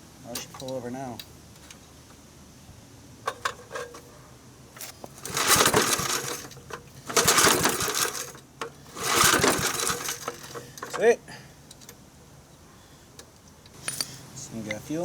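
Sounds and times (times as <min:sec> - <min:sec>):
lawn mower recoil starter pulls: 0:04.8 - 0:11.2.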